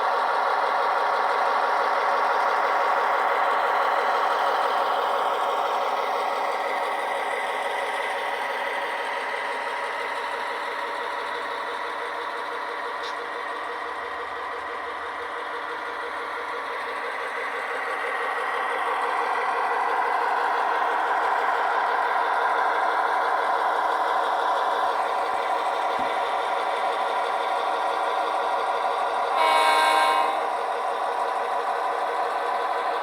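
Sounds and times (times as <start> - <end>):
model locomotive engine sound: 0.0 - 33.0
short horn blast: 29.4 - 30.6.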